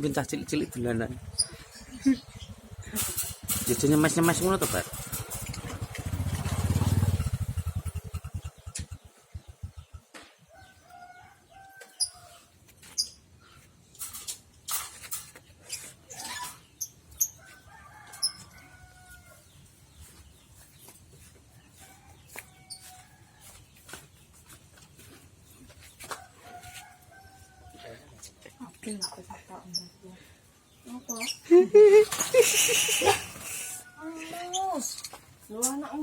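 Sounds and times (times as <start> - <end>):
engine low pulsing: 4.6 - 10.1
chickens clucking: 30.8 - 36.0.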